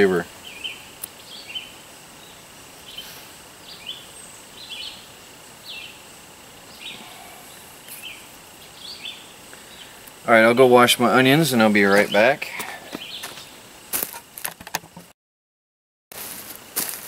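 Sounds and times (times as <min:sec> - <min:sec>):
small songbird chirping: 0:00.0 - 0:13.6
faint high-pitched insect-like hum: 0:00.0 - 0:15.1, 0:16.2 - 0:17.0.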